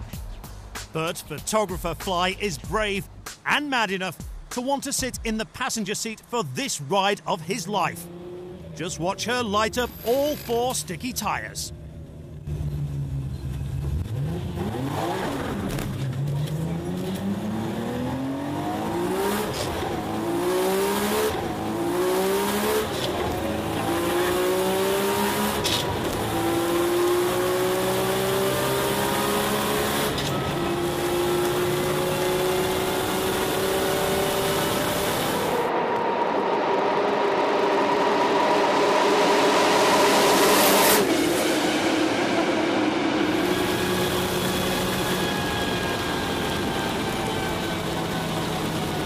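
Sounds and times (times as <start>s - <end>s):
car engine accelerating through gears: 8.0s - 9.0s, 11.8s - 49.0s.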